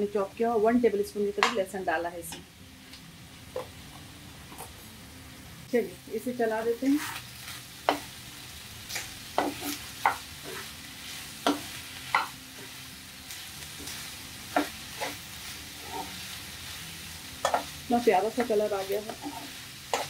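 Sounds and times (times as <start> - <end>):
food sizzling in a frying pan: 0.0 - 20.0
metal spatula scraping a pan: 6.9 - 8.1, 13.8 - 16.4, 18.4 - 20.0.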